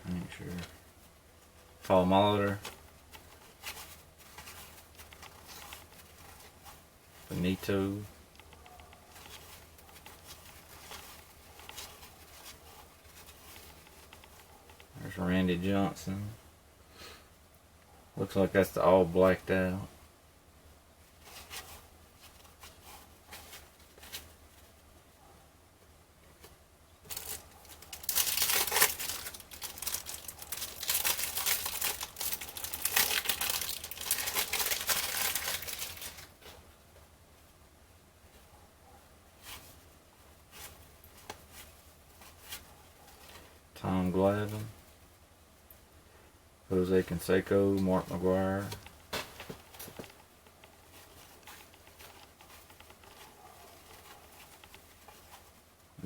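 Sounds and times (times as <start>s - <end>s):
cellophane wrapper crinkling: 27.0s - 36.4s.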